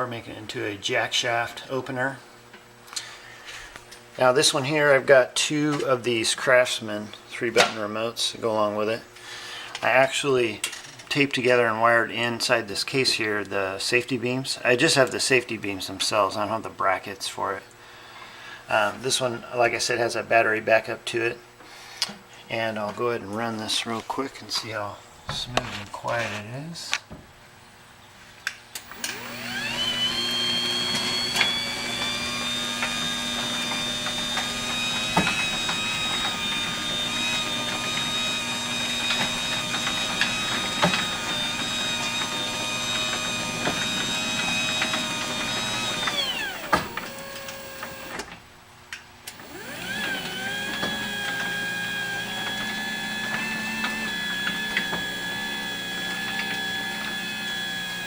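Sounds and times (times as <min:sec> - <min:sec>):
garage door opener motor whine: 0:28.8 - 0:48.4, 0:49.3 - 0:58.0.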